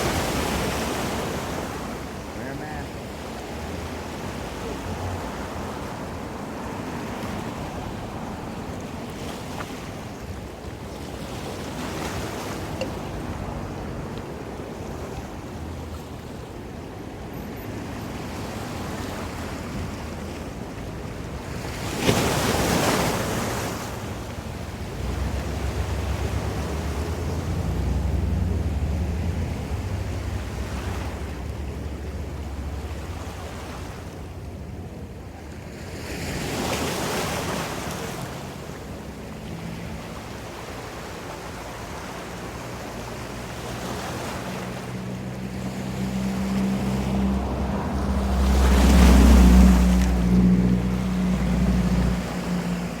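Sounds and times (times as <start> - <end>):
ocean waves breaking: 0.0 - 53.0.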